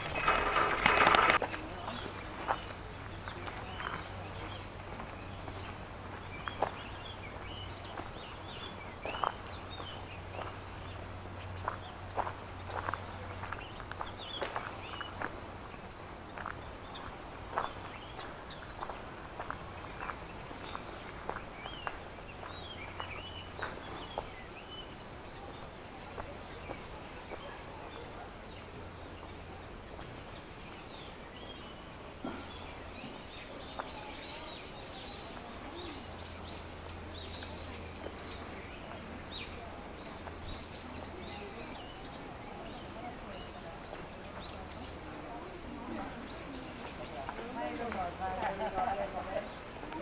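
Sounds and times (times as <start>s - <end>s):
footsteps: 0.0s - 8.2s
outdoor background noise: 0.0s - 50.0s
small birds chirping: 0.0s - 50.0s.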